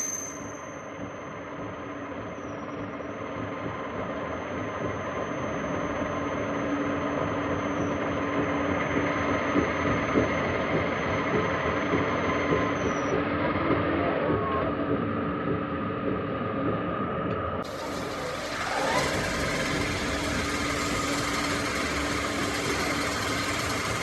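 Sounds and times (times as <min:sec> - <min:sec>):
machine tool motor hum: 0:17.6 - 0:24.0.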